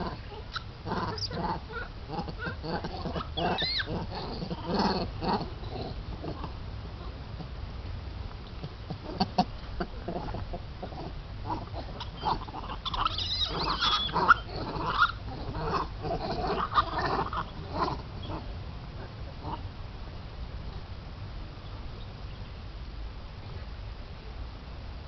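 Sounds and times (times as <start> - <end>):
monkeys squeaky calls: 0.0 - 4.3, 12.0 - 15.8.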